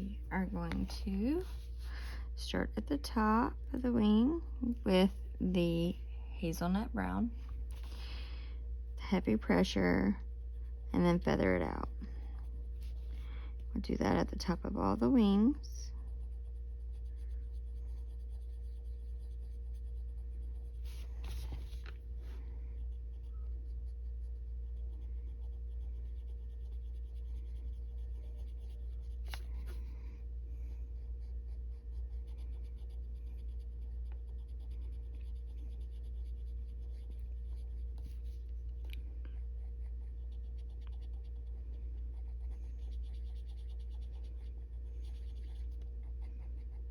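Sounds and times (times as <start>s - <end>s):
low hum: 0.0s - 46.9s
pencil scratching on paper: 14.4s - 29.9s, 30.9s - 38.6s, 39.3s - 46.9s.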